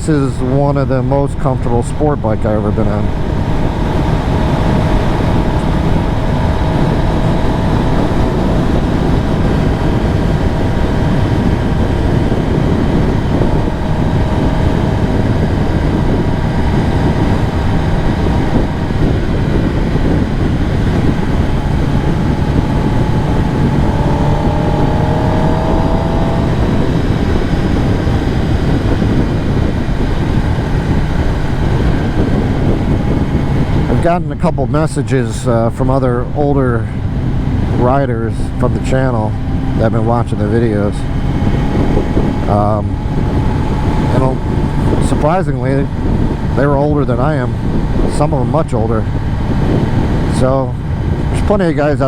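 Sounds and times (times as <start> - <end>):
motorcycle engine running: 0.0 - 52.0
wind noise: 0.0 - 52.0.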